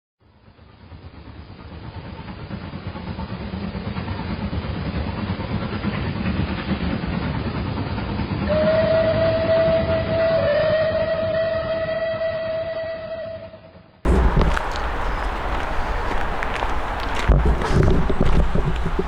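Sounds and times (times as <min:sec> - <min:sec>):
long steady train whistle: 0:08.1 - 0:19.0
train rumbling: 0:14.1 - 0:19.0.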